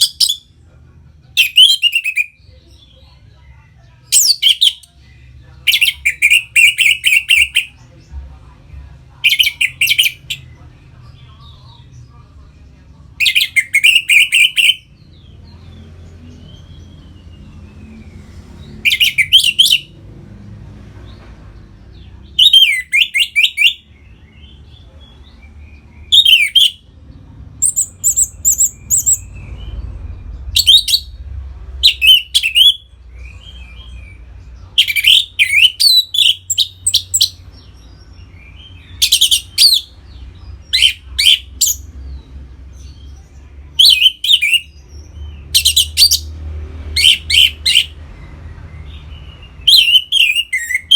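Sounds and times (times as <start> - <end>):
faint low hum: 0.0 - 50.9.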